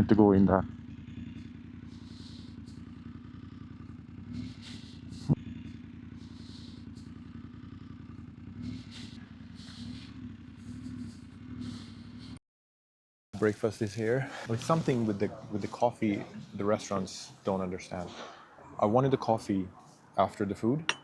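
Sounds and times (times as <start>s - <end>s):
motorcycle engine running at low revs: 0.1s - 12.3s.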